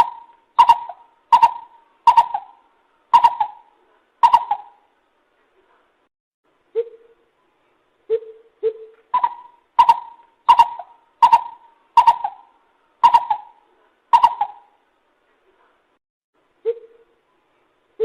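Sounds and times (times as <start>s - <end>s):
coucal hooting call: 0.0s - 4.9s, 8.1s - 14.8s.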